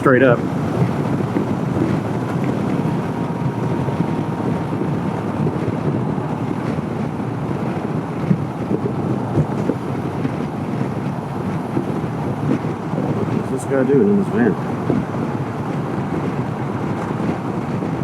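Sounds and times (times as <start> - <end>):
road noise: 0.0 - 18.0
wind rushing over microphone: 0.0 - 18.0.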